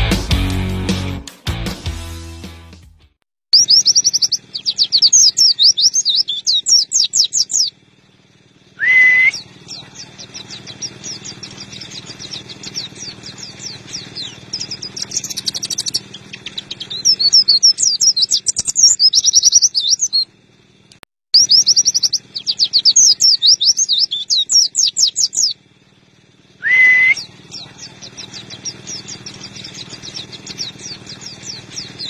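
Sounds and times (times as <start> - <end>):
bird chattering song: 3.5 - 7.8, 8.8 - 20.8, 21.4 - 25.8, 26.4 - 32.0.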